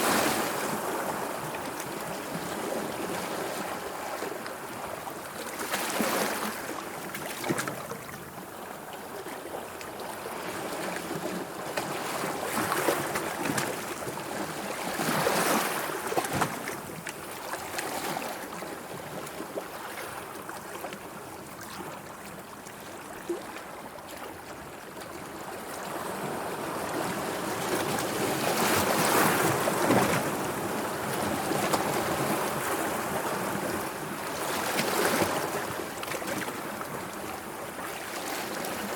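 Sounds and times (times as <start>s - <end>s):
sea waves washing and lapping: 0.0s - 38.9s.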